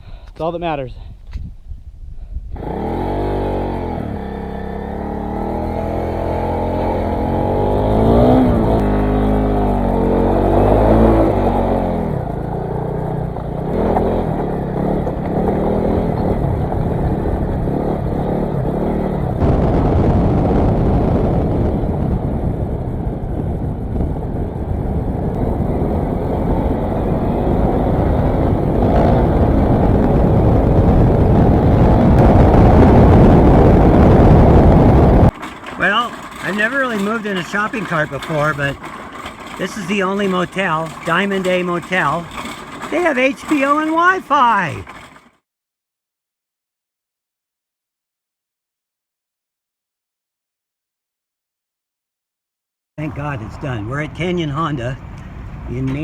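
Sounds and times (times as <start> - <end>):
motorcycle engine revving: 2.6 - 45.4.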